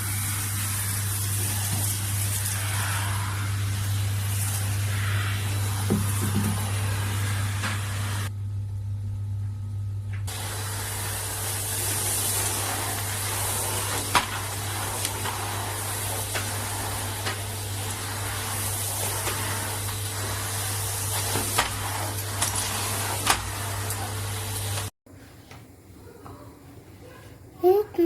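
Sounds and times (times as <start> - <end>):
airflow hiss: 0.0 - 8.3, 10.3 - 24.8
vacuum motor hum: 0.0 - 24.9.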